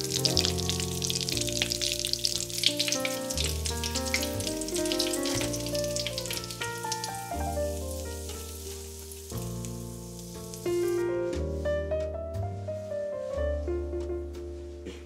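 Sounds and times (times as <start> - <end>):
food deep-frying in oil: 0.0 - 11.2
background music: 0.0 - 15.0.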